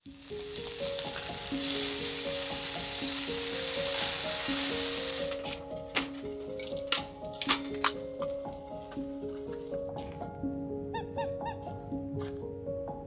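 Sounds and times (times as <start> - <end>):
food sizzling in a pan: 0.0 - 9.9
soft melodic music: 0.0 - 13.0.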